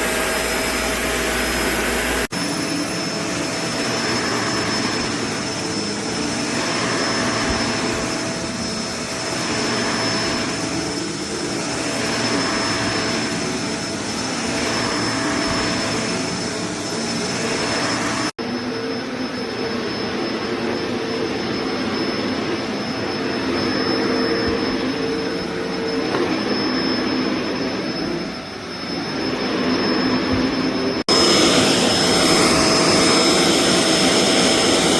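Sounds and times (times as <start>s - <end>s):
vacuum cleaner motor whine: 0.0s - 34.9s.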